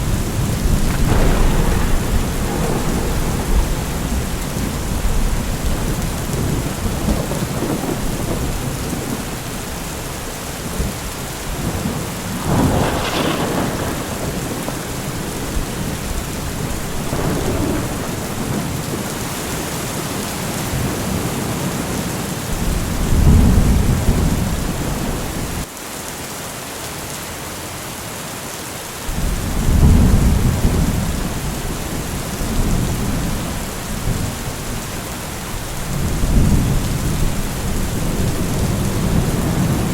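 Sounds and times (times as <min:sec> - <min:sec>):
thunderclap: 0:00.0 - 0:19.5, 0:22.5 - 0:25.7, 0:29.1 - 0:39.9
rolling thunder rumbles: 0:00.0 - 0:25.7, 0:29.1 - 0:39.9
steady rain: 0:00.0 - 0:39.9.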